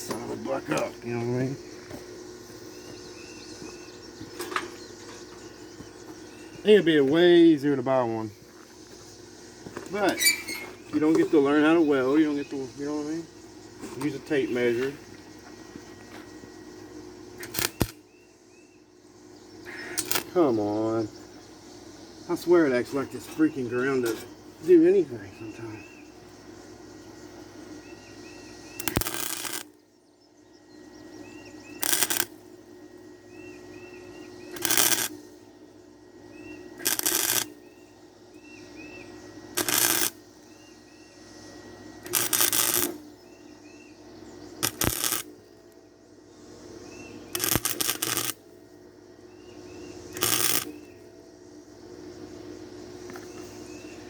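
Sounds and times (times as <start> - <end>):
crackling welding arc: 17.3 - 18.1, 19.7 - 20.4, 28.2 - 29.9, 31.7 - 32.6, 34.4 - 35.4, 36.7 - 37.7, 39.0 - 40.5, 41.9 - 43.2, 44.6 - 45.6, 47.3 - 48.6, 50.0 - 51.1.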